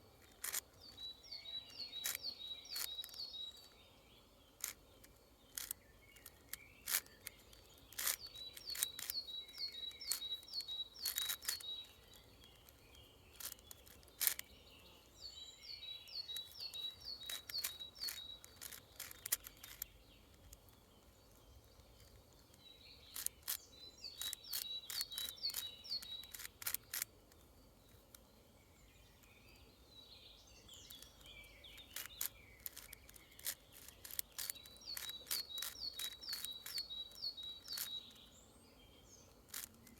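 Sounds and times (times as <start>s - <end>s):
puzzle cube clicking and scraping: 0.2s - 3.7s, 4.6s - 14.5s, 16.2s - 27.4s, 30.7s - 38.2s, 39.4s - 39.9s.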